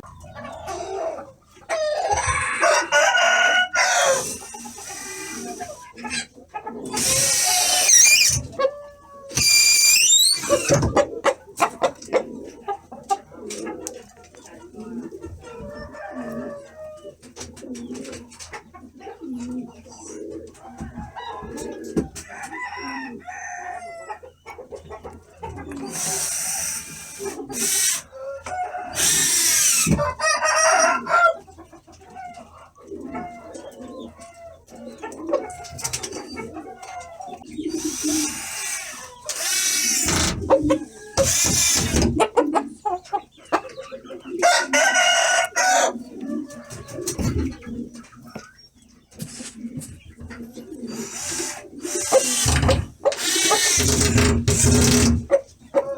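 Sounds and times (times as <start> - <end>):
rooster clucking: 0.0 - 17.2, 18.4 - 48.4, 49.2 - 55.9
rooster crowing: 1.8 - 4.4, 30.1 - 31.4, 44.4 - 46.0.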